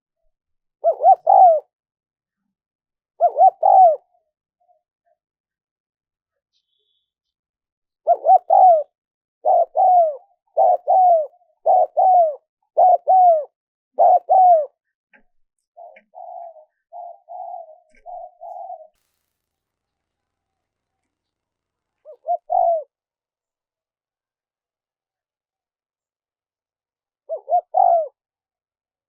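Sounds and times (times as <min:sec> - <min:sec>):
dove cooing: 0:00.8 - 0:01.7, 0:03.2 - 0:04.2, 0:08.0 - 0:14.8, 0:15.8 - 0:19.0, 0:22.0 - 0:23.0, 0:27.3 - 0:28.2.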